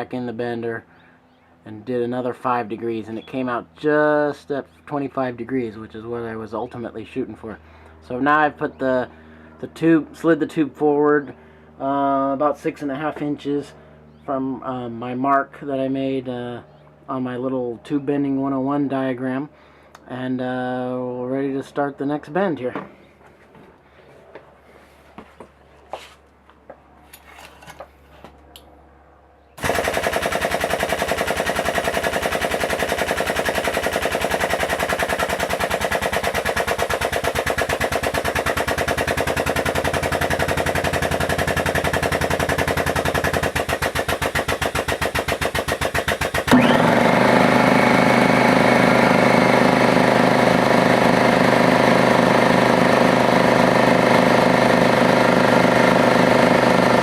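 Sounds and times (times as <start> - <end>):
tube bender motor pulsing: 29.6 - 57.0.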